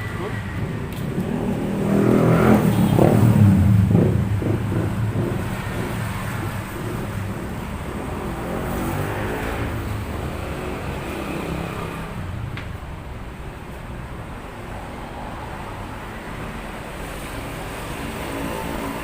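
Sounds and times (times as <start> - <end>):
vehicle engine revving: 0.5 - 12.4.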